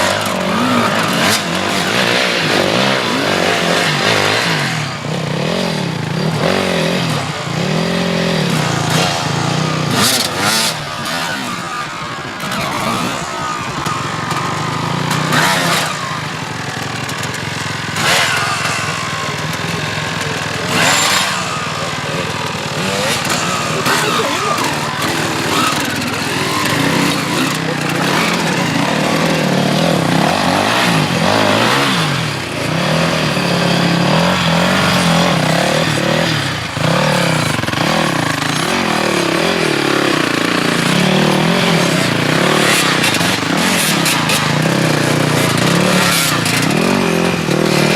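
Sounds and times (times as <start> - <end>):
motorcycle engines running: 0.0 - 47.9.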